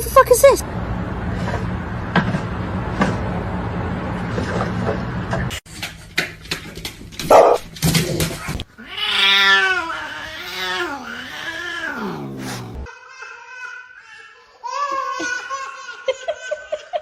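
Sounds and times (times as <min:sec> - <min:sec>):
cat yowling: 0:08.8 - 0:12.9.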